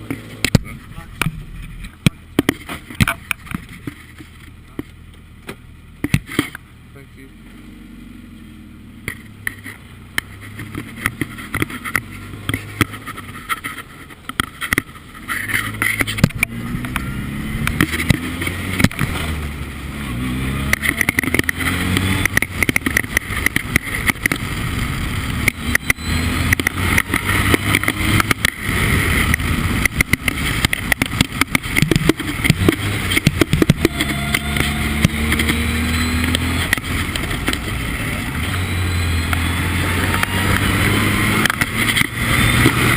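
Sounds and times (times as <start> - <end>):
engine crackles: 0.0 - 42.9
race car engine accelerating: 15.3 - 42.9.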